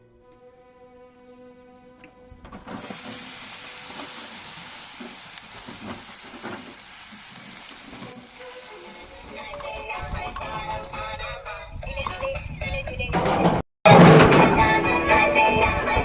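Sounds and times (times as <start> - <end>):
steady hissing sizzling: 2.7 - 10.1.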